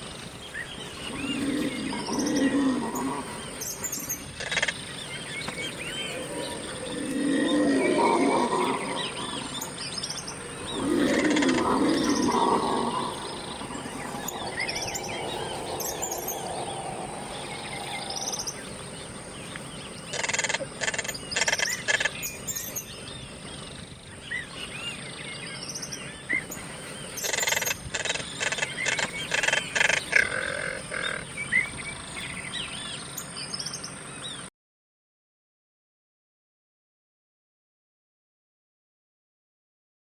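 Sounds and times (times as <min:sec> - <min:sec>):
birds chirping: 0:00.0 - 0:34.5
steady high-pitched whine: 0:00.0 - 0:34.5
rapid sharp bird chattering: 0:03.8 - 0:04.9, 0:20.1 - 0:22.8, 0:27.2 - 0:31.2.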